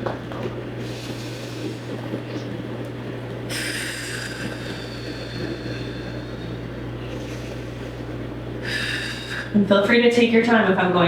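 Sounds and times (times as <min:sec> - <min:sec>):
low room hum: 0:00.0 - 0:11.0
person breathing slowly: 0:03.5 - 0:09.6.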